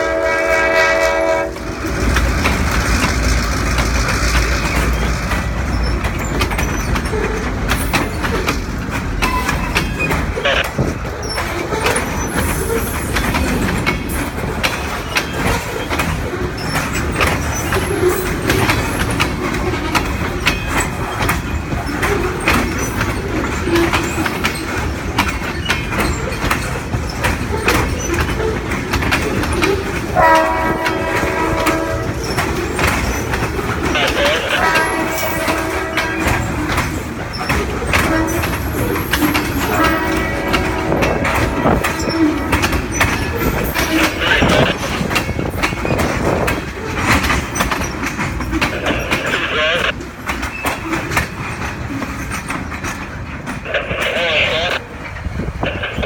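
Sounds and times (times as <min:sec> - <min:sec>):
locomotive horn: 0:00.0 - 0:01.8, 0:10.4 - 0:10.7, 0:30.2 - 0:32.4, 0:33.8 - 0:36.8, 0:37.9 - 0:42.7, 0:43.8 - 0:44.9
train wheels clicking over rail joints: 0:00.0 - 0:56.0.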